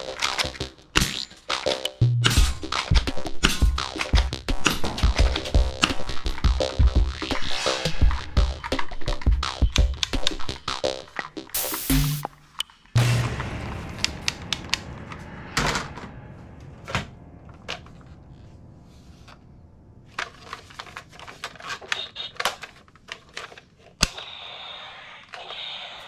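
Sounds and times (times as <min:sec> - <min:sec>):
plastic toy gun clicks: 0:21.2 - 0:24.3.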